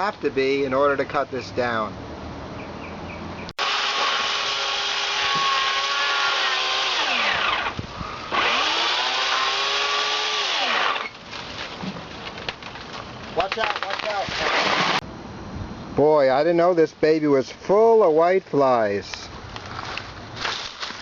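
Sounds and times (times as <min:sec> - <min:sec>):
chainsaw cutting trunk: 0:03.6 - 0:11.2, 0:13.6 - 0:15.0.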